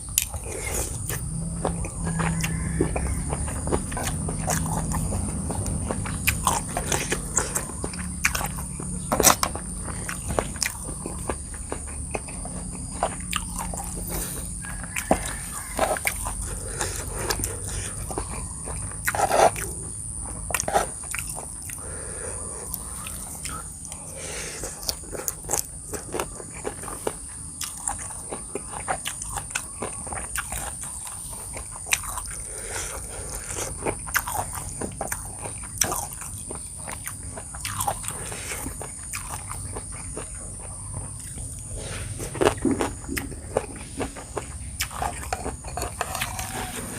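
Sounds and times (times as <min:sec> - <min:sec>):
food crunching: 0:00.0 - 0:46.9
wet chewing mouth sounds: 0:00.0 - 0:46.9.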